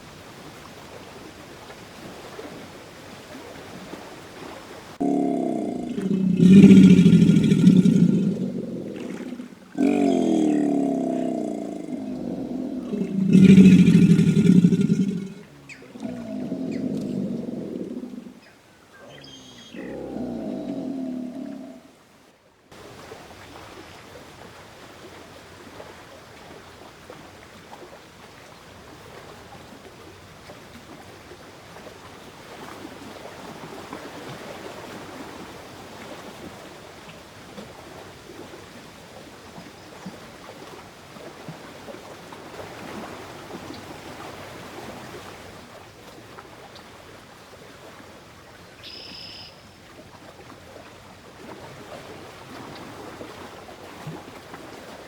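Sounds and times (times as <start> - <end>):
water rushing: 5.0 - 18.4.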